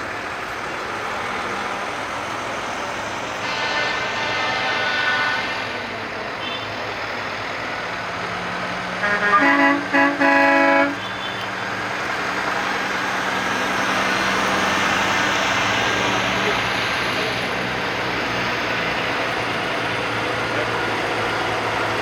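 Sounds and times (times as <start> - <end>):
truck engine running: 0.0 - 22.0
truck horn toots and blast: 3.4 - 5.6, 6.4 - 6.8, 9.0 - 11.6.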